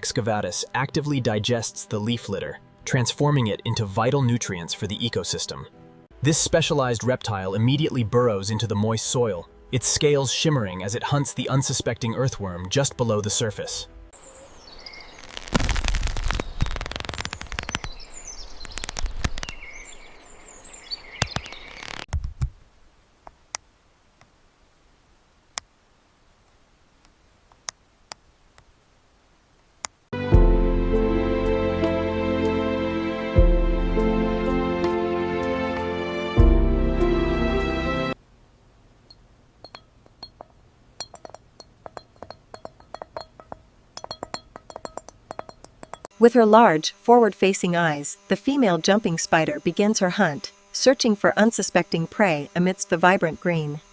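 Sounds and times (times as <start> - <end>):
birds chirping: 10.6 - 15.4, 16.3 - 22.1
isolated ticks: 15.2 - 19.7, 21.2 - 22.1, 39.0 - 46.1
light ringing clicks and clinks: 39.1 - 46.1.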